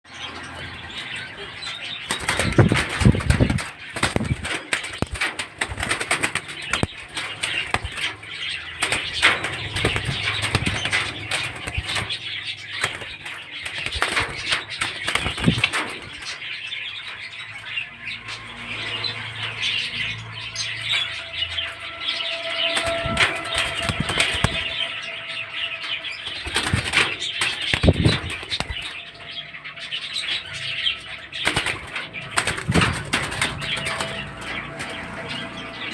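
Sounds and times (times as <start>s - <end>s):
wings flapping and rustling: 2.0s - 16.6s, 22.4s - 25.0s, 26.0s - 29.4s, 30.2s - 35.7s.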